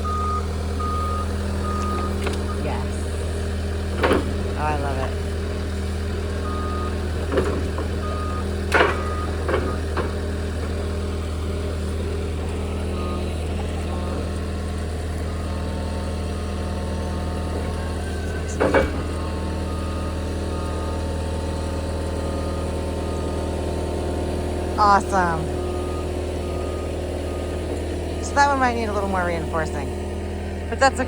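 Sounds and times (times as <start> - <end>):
backup alarm beeping: 0.0 - 3.2, 6.1 - 10.3, 12.5 - 14.4, 15.1 - 30.0
diesel engine running: 0.0 - 31.0.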